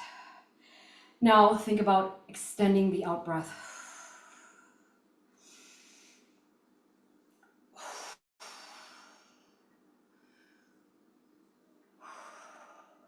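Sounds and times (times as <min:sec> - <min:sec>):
woman breathing deeply: 0:00.0 - 0:01.2, 0:03.5 - 0:06.4, 0:07.7 - 0:10.9, 0:12.0 - 0:13.0.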